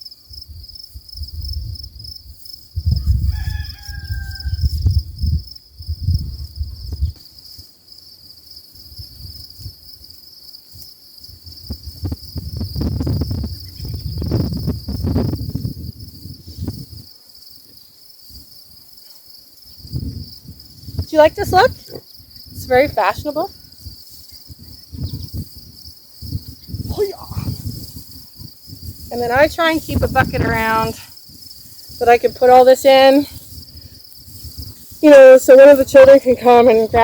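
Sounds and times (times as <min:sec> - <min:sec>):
insects chirring: 0:00.0 - 0:37.0
rooster crowing: 0:03.0 - 0:04.8.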